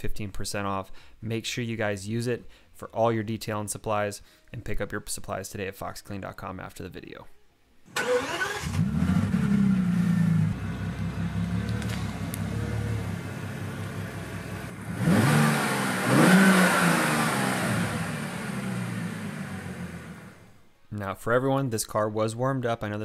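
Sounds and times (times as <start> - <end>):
car engine revving: 8.0 - 20.5.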